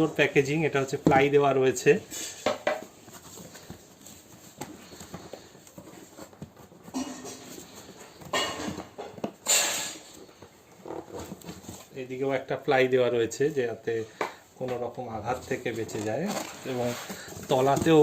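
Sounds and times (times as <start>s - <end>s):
cardboard scraping: 2.1s - 8.2s, 10.0s - 12.0s, 15.3s - 18.0s
packing material rustling: 15.2s - 18.0s.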